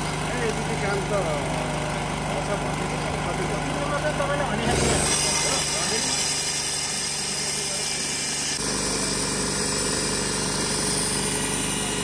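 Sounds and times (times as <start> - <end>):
motorised machine humming and rattling: 0.0 - 12.0.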